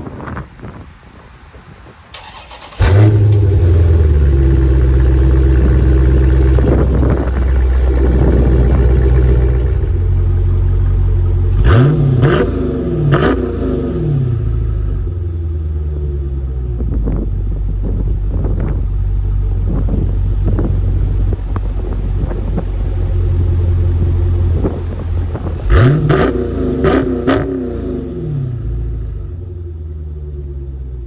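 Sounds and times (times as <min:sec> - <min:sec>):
car engine starting and idling: 0:02.1 - 0:31.0
engine revving blips: 0:11.5 - 0:14.6, 0:25.6 - 0:28.8.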